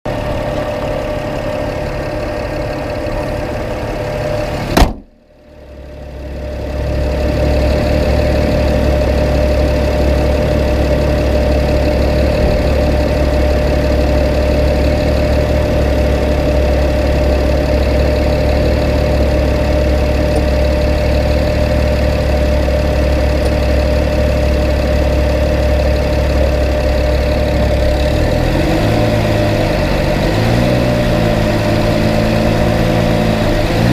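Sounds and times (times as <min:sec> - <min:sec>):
car engine running: 0:00.1 - 0:33.9
sharp knock: 0:04.8 - 0:05.1.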